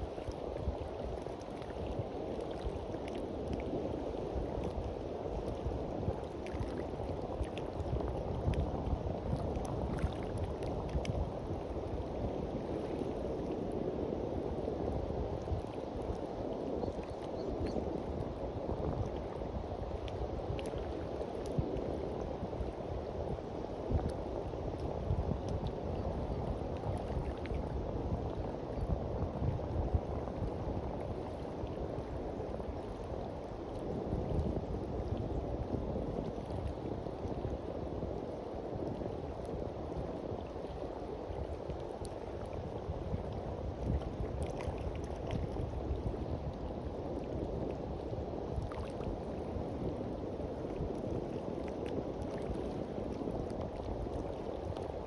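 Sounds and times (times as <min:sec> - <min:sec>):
sea waves washing onto beach: 0:00.0 - 0:55.0.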